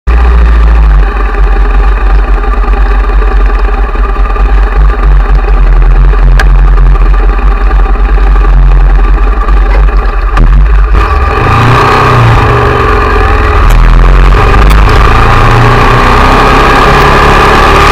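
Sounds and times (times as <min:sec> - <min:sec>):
motorcycle engine idling: 0:00.1 - 0:11.3.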